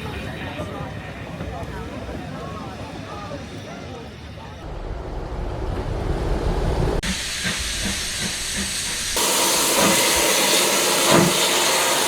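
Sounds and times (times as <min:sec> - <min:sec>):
steam locomotive hissing: 0:04.3 - 0:12.0.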